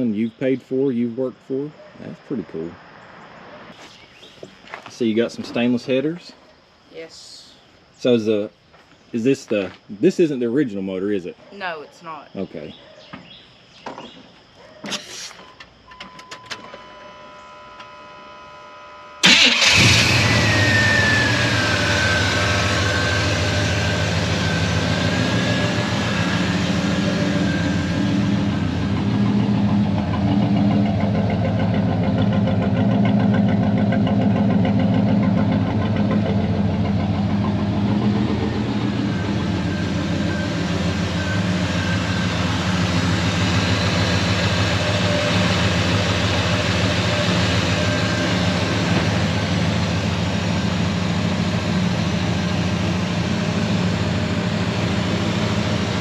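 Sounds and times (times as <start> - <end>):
truck engine starting and idling: 14.8 - 56.0
high whine falling in pitch: 19.9 - 32.7, 34.6 - 56.0
steady beep: 38.3 - 42.8.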